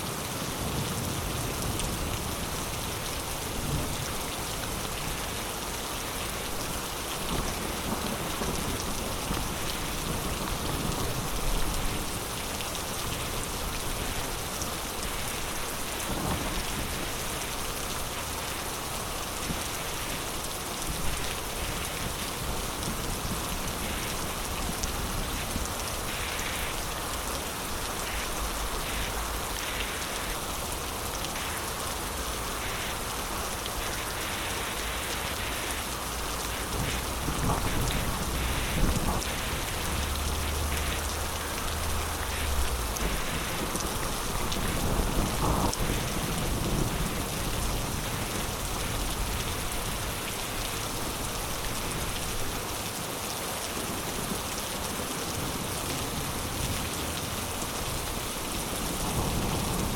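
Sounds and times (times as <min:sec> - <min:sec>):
heavy rain pouring: 0:00.0 - 0:59.9
low thunder rumble: 0:36.4 - 0:50.1.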